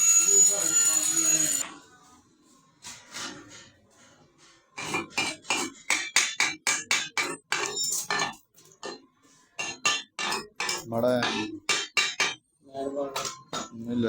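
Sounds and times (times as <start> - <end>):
metal tapping on metal: 4.8 - 9.0, 9.6 - 12.4.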